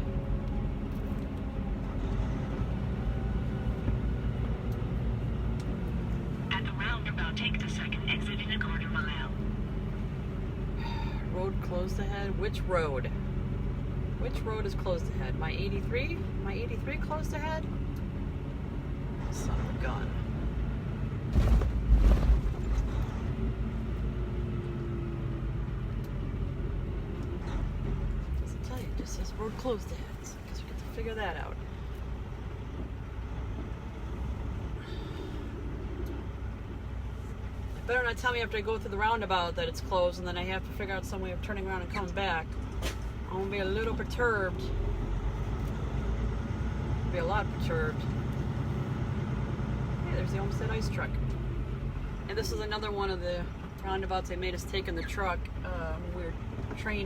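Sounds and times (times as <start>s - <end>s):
truck engine and road rumble: 0.0s - 57.0s
cab jolts and rattling: 21.2s - 23.4s.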